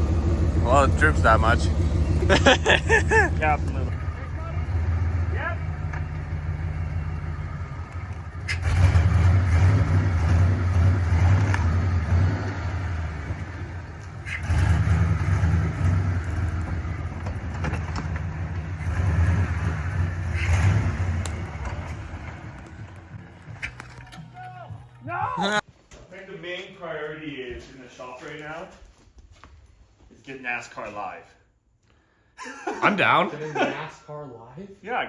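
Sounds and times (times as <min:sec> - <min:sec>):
vehicle engine droning: 0:00.0 - 0:25.0.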